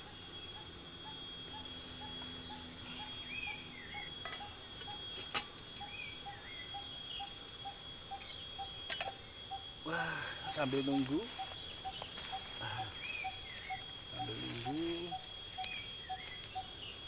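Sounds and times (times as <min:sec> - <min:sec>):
constant high whine: 0:00.0 - 0:17.0
bird warbling: 0:09.5 - 0:17.0.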